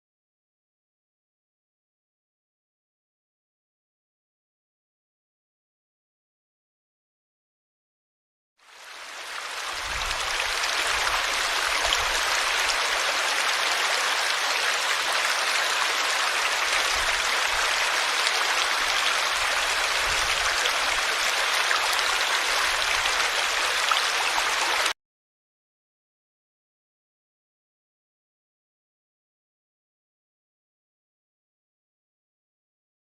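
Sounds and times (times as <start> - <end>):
river water rushing: 8.7 - 24.9.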